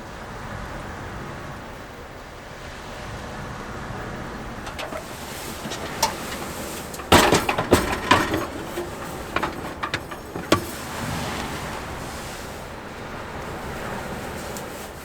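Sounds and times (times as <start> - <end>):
camping gear knocks and clatters: 4.6 - 15.0.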